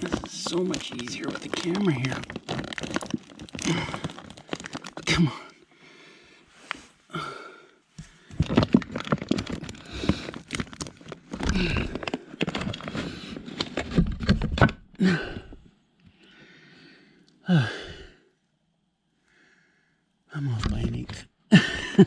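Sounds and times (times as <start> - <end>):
person grunting: 3.6 - 4.2, 5.0 - 5.5, 11.5 - 11.9, 15.0 - 15.5, 17.5 - 18.1.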